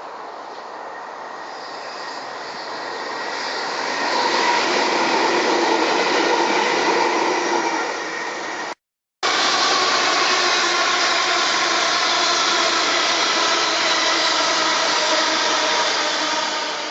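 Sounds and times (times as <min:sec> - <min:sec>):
train passing: 0:00.0 - 0:16.9.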